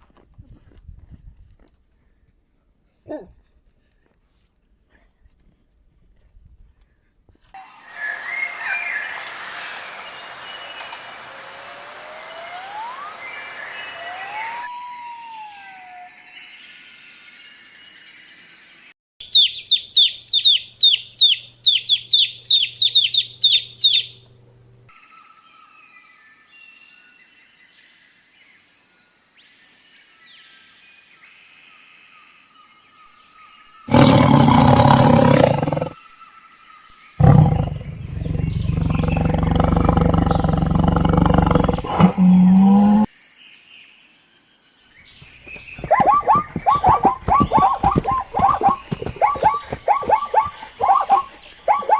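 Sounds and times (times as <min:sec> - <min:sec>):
high chirping animal calls: 0:19.2 - 0:24.2, 0:37.2 - 0:43.1, 0:45.2 - 0:51.9
loud low animal calls: 0:33.9 - 0:36.0, 0:37.2 - 0:43.1, 0:45.6 - 0:51.9.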